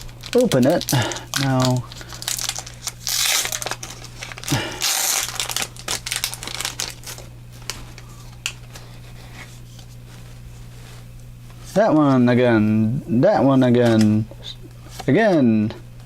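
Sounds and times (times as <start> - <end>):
plastic wrapper crinkling and tearing: 0.0 - 8.6.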